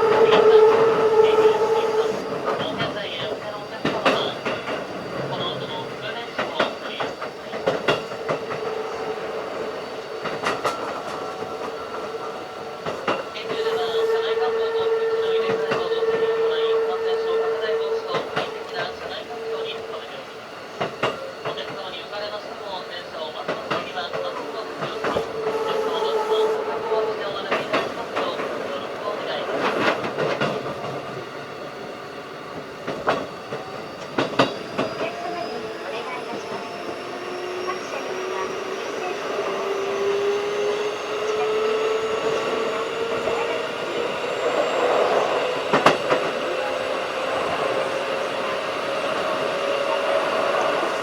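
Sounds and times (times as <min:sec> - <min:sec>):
wheels clacking on rail joints: 0:00.0 - 0:20.0, 0:20.8 - 0:31.4
train running noise: 0:00.0 - 0:51.0.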